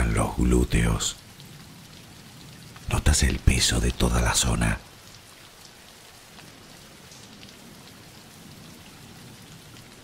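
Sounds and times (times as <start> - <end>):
faint raindrop ticks: 0.0 - 10.0
steady rain hiss: 0.0 - 10.0.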